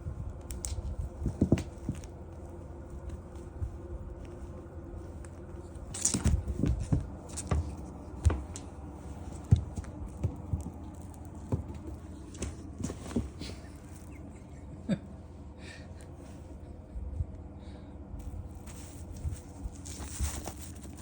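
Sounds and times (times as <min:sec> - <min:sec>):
low room hum: 0:00.0 - 0:21.0
kittens scrambling thumps: 0:05.4 - 0:14.3.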